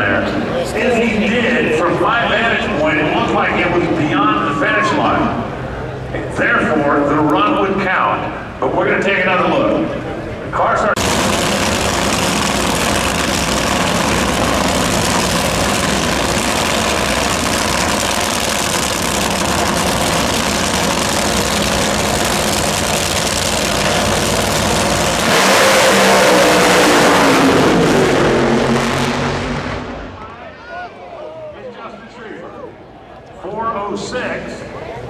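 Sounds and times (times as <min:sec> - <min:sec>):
racing car engine running: 0:11.0 - 0:30.4.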